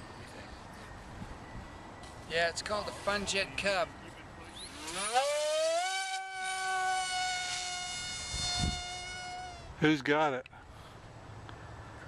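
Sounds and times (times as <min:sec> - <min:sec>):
rc plane motor whine: 0:04.6 - 0:09.8.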